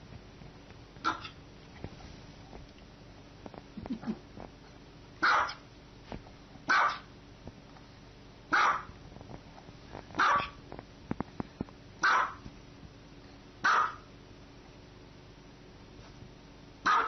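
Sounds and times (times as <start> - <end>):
small dog barking: 1.0 - 1.4, 5.2 - 5.6, 6.7 - 7.1, 8.5 - 8.9, 10.2 - 10.6, 12.0 - 12.4, 13.6 - 14.1.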